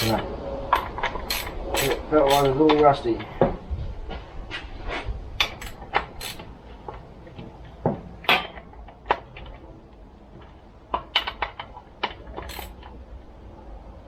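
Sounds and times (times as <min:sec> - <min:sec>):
metal clicks and knocks: 0:00.0 - 0:02.8, 0:05.4 - 0:07.0, 0:10.9 - 0:12.9.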